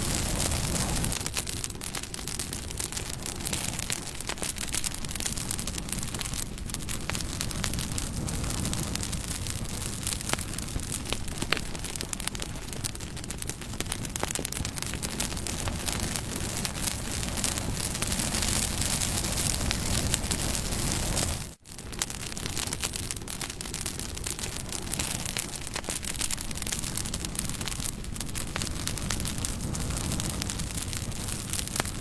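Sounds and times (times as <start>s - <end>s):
bonfire crackling: 0.0s - 32.0s.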